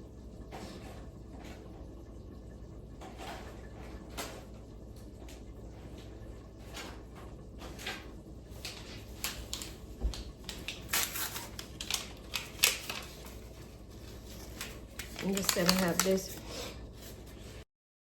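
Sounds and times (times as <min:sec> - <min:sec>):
kitchen items knocking and clicking: 0:14.3 - 0:16.4.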